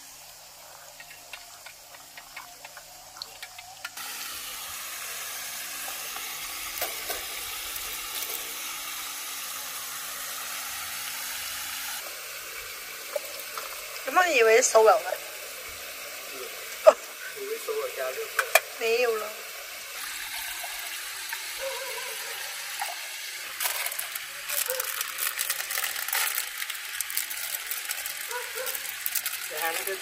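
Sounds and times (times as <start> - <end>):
food sizzling in a pan: 0.0 - 30.0
utensil clicks and scrapes: 23.6 - 30.0.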